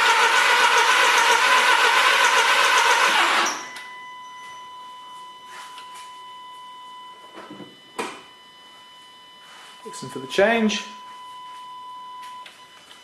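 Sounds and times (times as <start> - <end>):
engine cranking on starter: 0.0 - 3.7.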